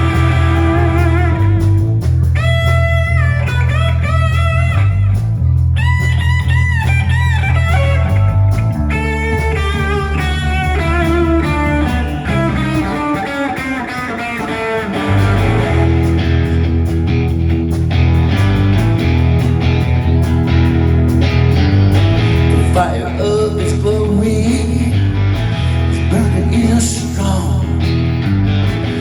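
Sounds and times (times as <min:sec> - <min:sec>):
bass line: 0:00.0 - 0:14.0, 0:14.8 - 0:29.0
lead guitar melody: 0:00.0 - 0:29.0.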